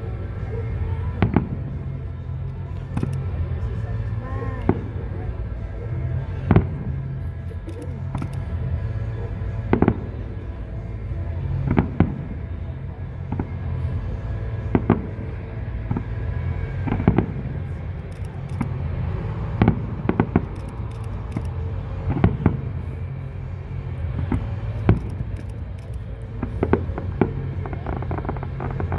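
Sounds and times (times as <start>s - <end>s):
steady low hum: 0.0s - 28.9s
fireworks bangs: 23.8s - 28.9s.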